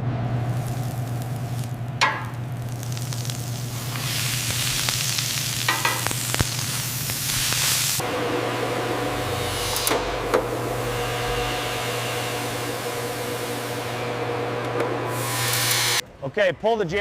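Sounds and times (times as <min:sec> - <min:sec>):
steady low hum: 0:00.0 - 0:16.2
food sizzling in frying: 0:00.3 - 0:08.0.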